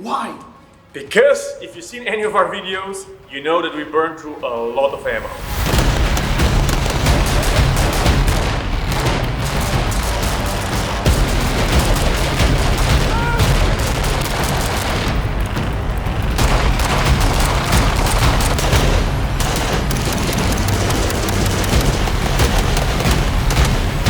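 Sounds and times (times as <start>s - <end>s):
rapid gunfire: 5.3s - 24.0s
music with heavy bass: 5.6s - 24.0s.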